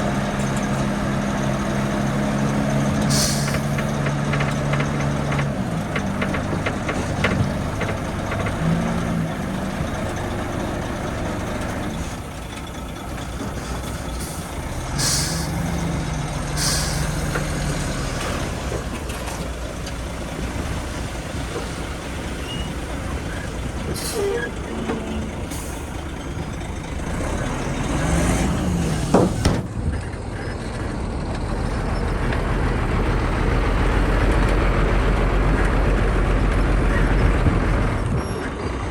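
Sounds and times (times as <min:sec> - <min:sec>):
heavy diesel machinery running: 0:00.0 - 0:38.9
air-brake hisses: 0:03.1 - 0:03.8, 0:14.2 - 0:15.8, 0:16.6 - 0:17.3, 0:22.4 - 0:24.7.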